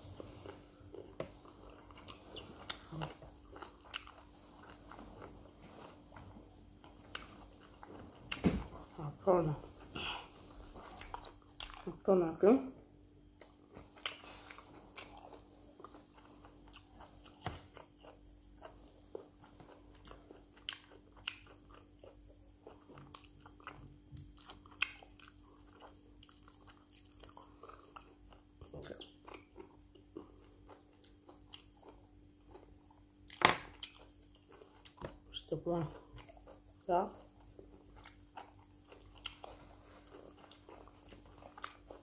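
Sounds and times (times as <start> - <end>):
person chewing meat: 0.1 - 9.0, 9.8 - 11.9, 13.2 - 42.0.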